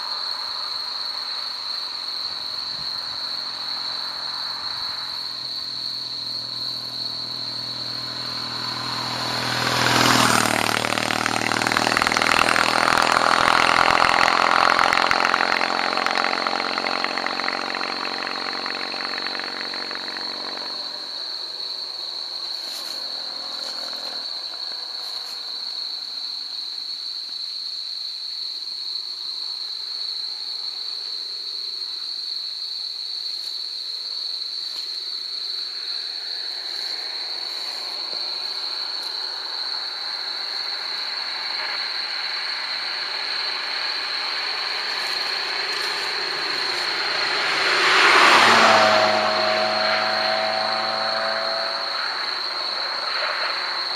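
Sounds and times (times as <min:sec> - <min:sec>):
vehicle approaching: 0:01.6 - 0:26.2, 0:35.7 - 0:53.9
high-pitched whine: 0:02.2 - 0:24.3, 0:40.5 - 0:53.9
engine sound: 0:02.4 - 0:25.1, 0:36.6 - 0:53.9.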